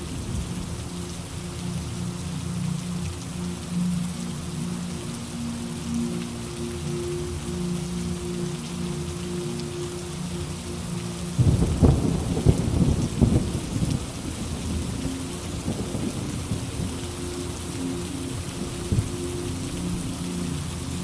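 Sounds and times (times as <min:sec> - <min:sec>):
steady rainfall: 0:00.0 - 0:21.0
thunder clap and rumble: 0:11.4 - 0:17.0.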